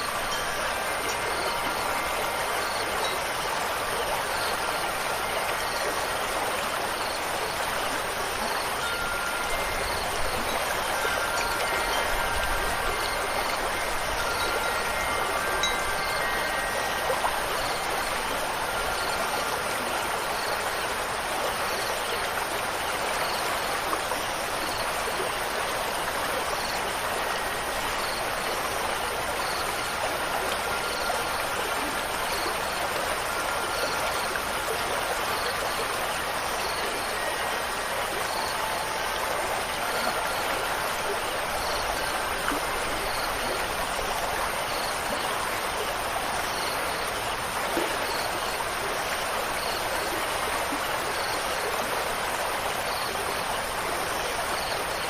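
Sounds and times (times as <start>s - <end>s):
wind chimes ringing: 0.0s - 6.2s, 8.4s - 20.4s
stream flowing: 0.0s - 55.0s.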